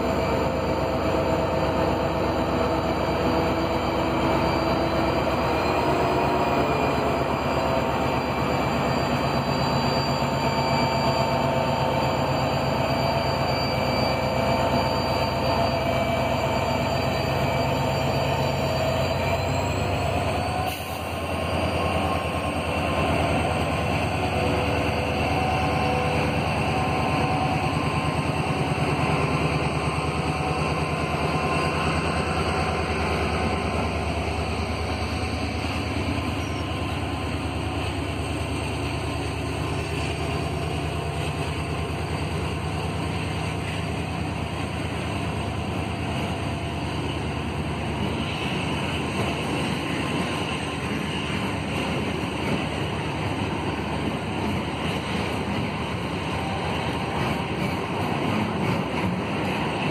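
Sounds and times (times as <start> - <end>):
locomotive engine drone and whine: 0.0 - 59.9
train wheels clattering on rails: 8.5 - 59.9.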